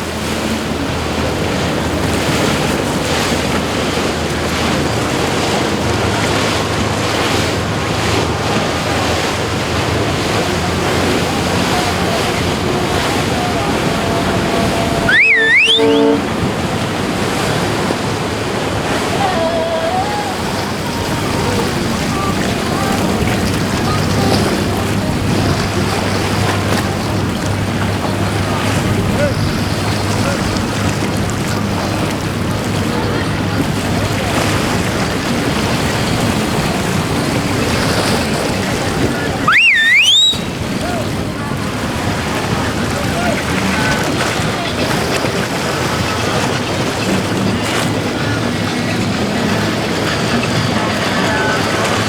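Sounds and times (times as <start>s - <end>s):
boat engines: 0.0s - 52.0s
surf and wind rushing: 0.0s - 52.0s
water noise: 0.0s - 52.0s
loud sliding whistle: 13.4s - 16.5s, 39.4s - 40.6s.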